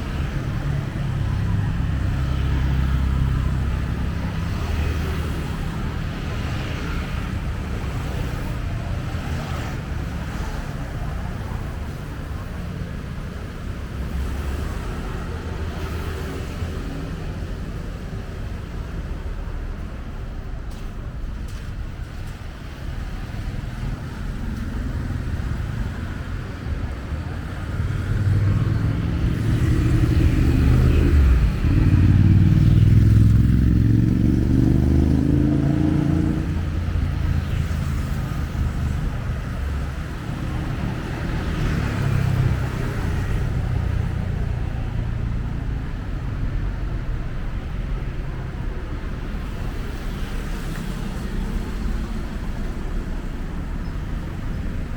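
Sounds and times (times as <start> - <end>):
traffic noise: 0.0 - 54.9
vehicle engine passing: 27.6 - 46.1.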